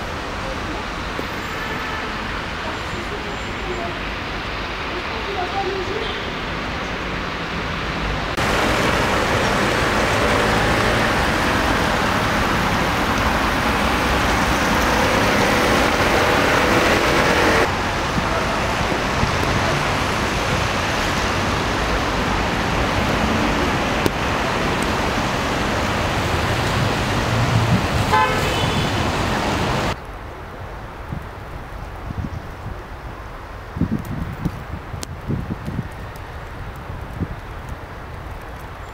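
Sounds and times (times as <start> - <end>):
street traffic: 0.0 - 38.9
car horn toot: 28.1 - 29.0.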